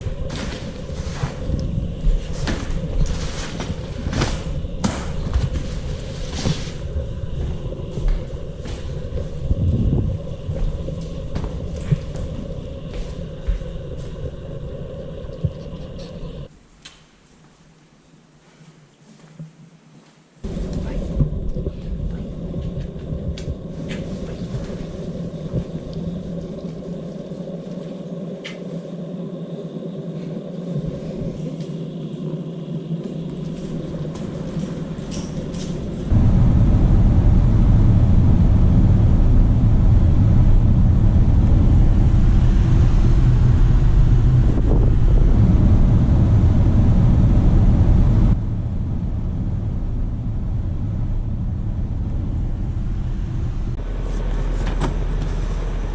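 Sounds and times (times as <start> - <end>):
moving vehicle rumble: 31.1 - 55.9.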